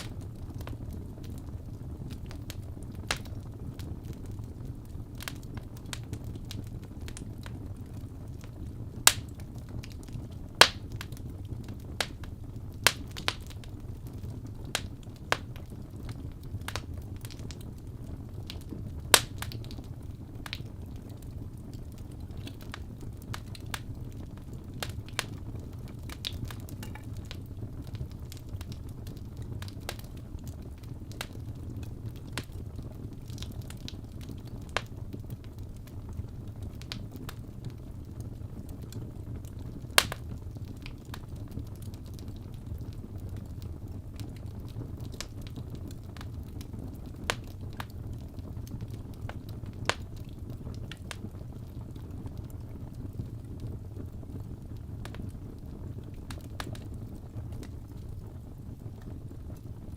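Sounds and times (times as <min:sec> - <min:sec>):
low rumble of flames: 0:00.0 - 0:59.9
wood fire crackling: 0:00.0 - 0:59.9
sharp pops and snaps: 0:09.0 - 0:13.6, 0:18.5 - 0:19.8, 0:26.1 - 0:27.5, 0:40.0 - 0:41.2.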